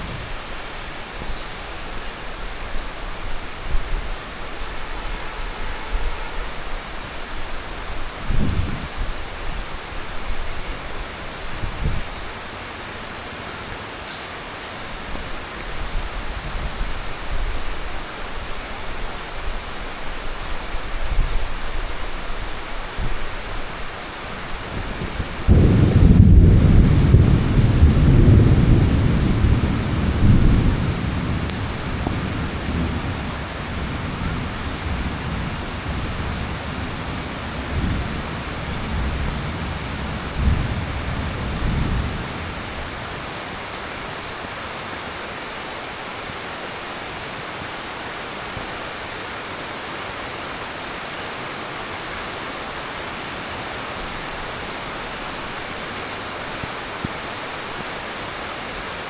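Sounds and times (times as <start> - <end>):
thunder rumbling: 0.0 - 12.4, 14.4 - 43.4
heavy rain: 0.0 - 59.0.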